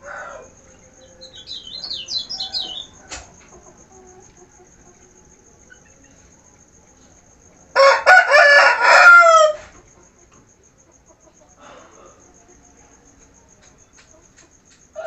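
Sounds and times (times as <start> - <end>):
rooster crowing: 0.0 - 3.8, 7.7 - 9.8.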